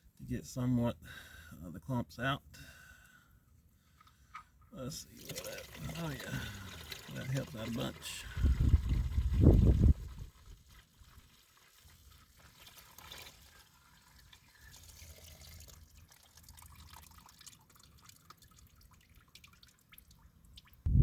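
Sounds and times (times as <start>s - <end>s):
liquid trickling and dripping: 5.0s - 20.9s.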